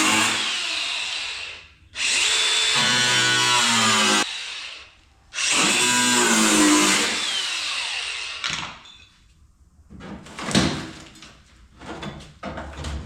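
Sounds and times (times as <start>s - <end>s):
power cutter cutting sheet steel: 2.0s - 8.4s.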